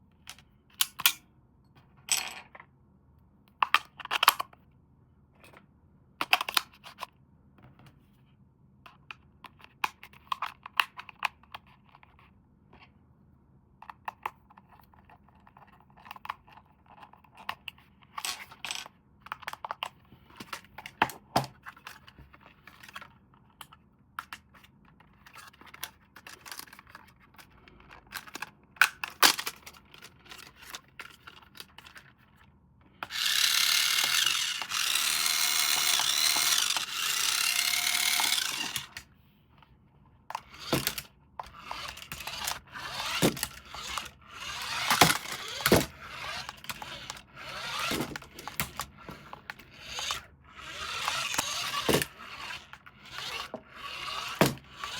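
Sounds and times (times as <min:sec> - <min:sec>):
plastic parts clicking and rustling: 0:03.5 - 0:04.6, 0:13.8 - 0:39.1, 0:40.3 - 0:54.9
plastic scraping: 0:33.0 - 0:39.0, 0:40.3 - 0:54.9
small electric toy motor whirring: 0:33.0 - 0:39.0, 0:40.3 - 0:54.9.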